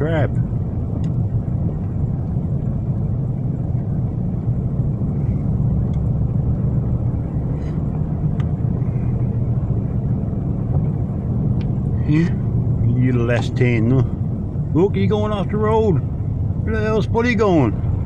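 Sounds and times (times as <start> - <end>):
car driving from inside cabin: 0.0 - 18.0
tyres on snowy road: 0.0 - 18.0.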